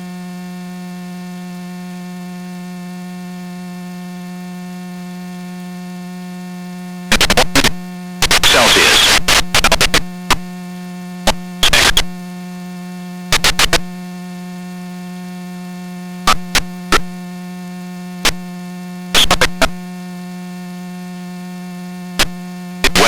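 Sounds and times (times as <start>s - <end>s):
radio electrical hum: 5.7s - 14.1s, 14.7s - 23.0s
static clicks and crackle: 7.1s - 10.5s, 11.2s - 12.2s, 13.3s - 13.9s, 16.3s - 17.2s, 18.2s - 18.5s, 19.1s - 19.9s, 22.2s - 23.0s.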